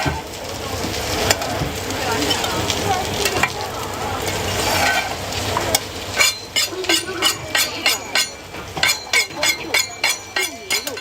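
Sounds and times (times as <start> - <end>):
food sizzling: 0.0 - 11.0
metal utensil stirring: 4.2 - 11.0.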